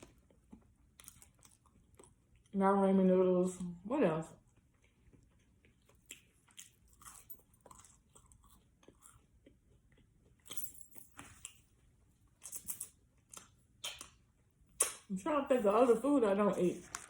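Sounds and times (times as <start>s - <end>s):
person chewing food: 0.0s - 2.5s, 4.4s - 10.6s, 11.3s - 15.1s.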